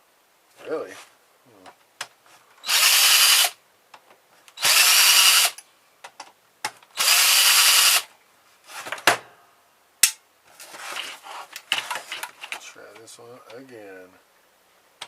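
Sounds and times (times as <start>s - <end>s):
power drill running: 2.6s - 3.6s, 4.6s - 5.6s, 7.0s - 8.1s.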